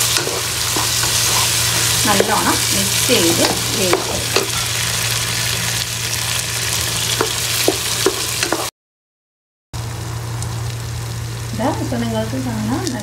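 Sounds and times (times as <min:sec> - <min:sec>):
vegetables sizzling in oil: 0:00.0 - 0:08.7, 0:09.8 - 0:13.0
spatula scraping and tapping pan: 0:00.1 - 0:02.6, 0:03.2 - 0:04.6, 0:07.2 - 0:08.7.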